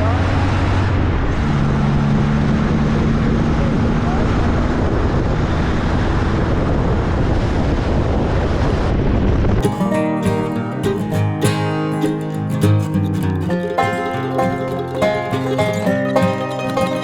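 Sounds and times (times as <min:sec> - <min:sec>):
wind rush: 0:04.5 - 0:09.6.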